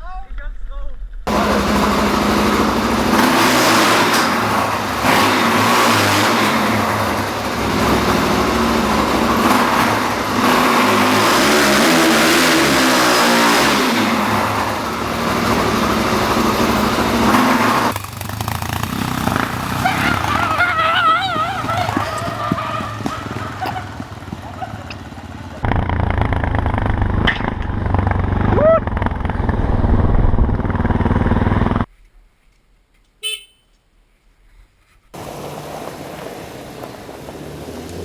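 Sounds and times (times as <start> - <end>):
motorcycle engine revving: 1.3 - 31.9, 35.2 - 38.0
rushing wind and road noise: 35.2 - 38.0.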